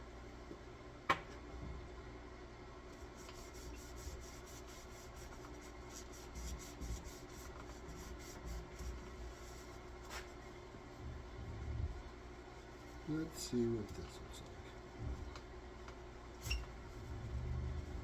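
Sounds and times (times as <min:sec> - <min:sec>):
rubbing strokes on wood: 0:03.0 - 0:11.9.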